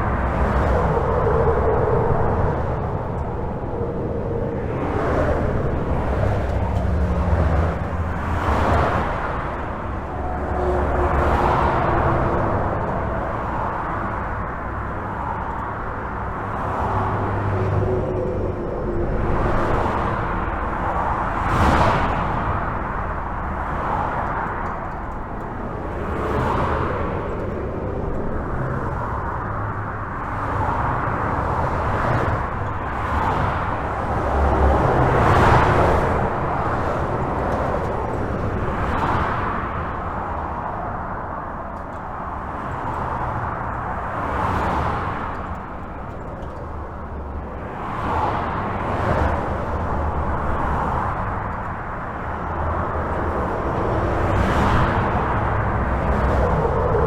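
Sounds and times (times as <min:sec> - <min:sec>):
highway traffic rumble: 0:00.0 - 0:57.0
tyre hiss of passing vehicles: 0:42.0 - 0:57.0.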